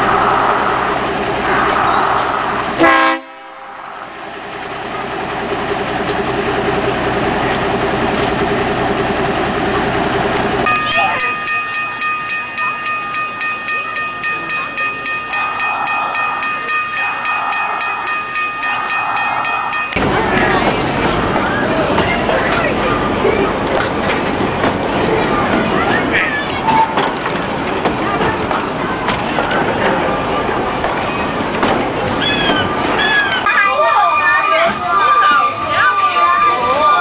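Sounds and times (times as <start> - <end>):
locomotive engine running: 0.0 - 37.0
crossing signal bell ringing: 10.6 - 23.6, 32.3 - 37.0.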